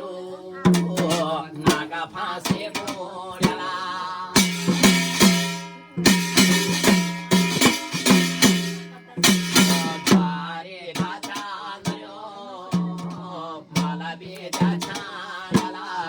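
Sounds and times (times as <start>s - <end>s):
person singing: 0.0s - 5.7s, 8.6s - 16.0s
drum strokes: 0.6s - 12.1s, 12.7s - 16.0s
loud ringing strikes: 4.4s - 10.4s.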